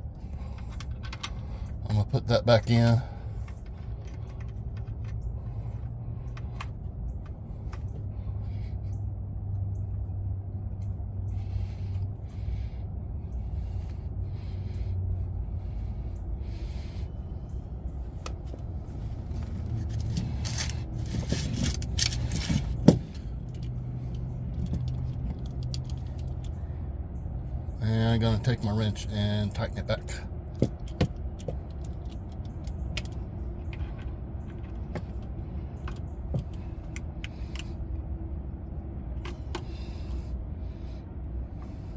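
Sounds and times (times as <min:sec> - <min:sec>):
steady low hum: 0:00.0 - 0:41.9
metal clicks and scrapes: 0:19.4 - 0:26.6.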